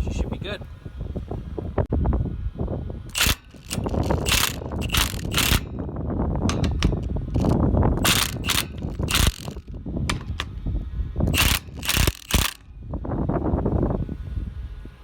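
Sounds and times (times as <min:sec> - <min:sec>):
metallic clicks from hand tool: 0:03.2 - 0:05.6, 0:06.5 - 0:10.6.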